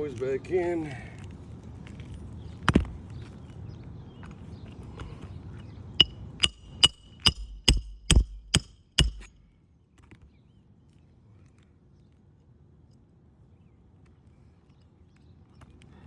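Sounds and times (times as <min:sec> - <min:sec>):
hammer striking nails: 0:06.0 - 0:09.4.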